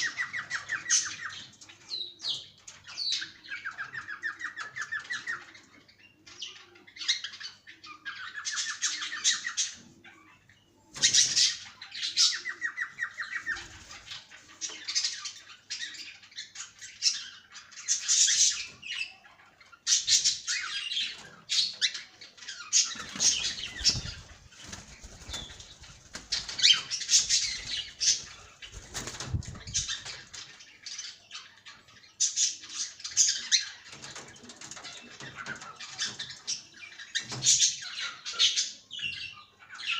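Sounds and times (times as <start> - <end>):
cockatiels chirping: 0.0 - 39.9
buzzy trilled calls: 19.9 - 31.1
wings flapping: 22.8 - 30.5.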